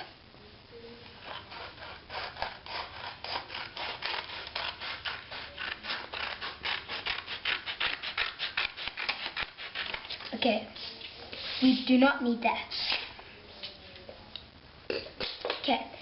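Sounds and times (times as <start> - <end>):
scissors snipping paper: 1.2 - 10.3.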